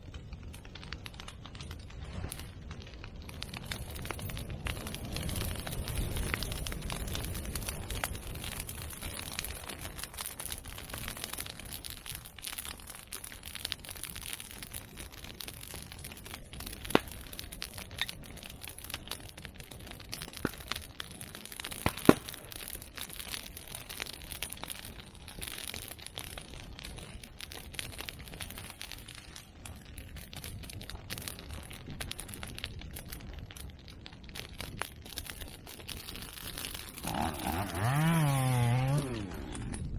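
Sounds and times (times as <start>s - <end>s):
open fire crackling: 0.0s - 39.9s
bamboo stems popping: 15.6s - 18.1s, 20.2s - 23.1s.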